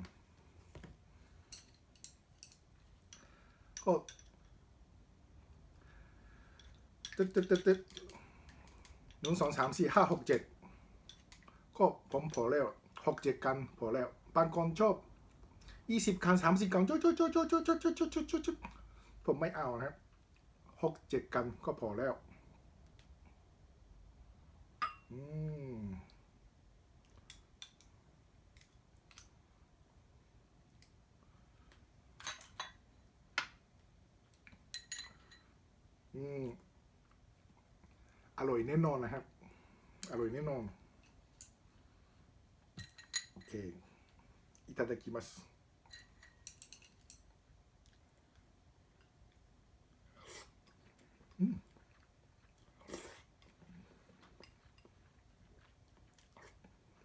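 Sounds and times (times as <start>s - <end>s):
low vocal hum: 25.1s - 26.2s
chewing and mouth sounds: 50.3s - 57.0s.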